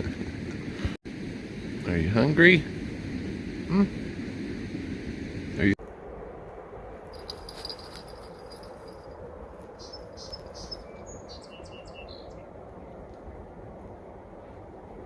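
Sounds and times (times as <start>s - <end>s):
small bird chirping: 9.8s - 12.4s.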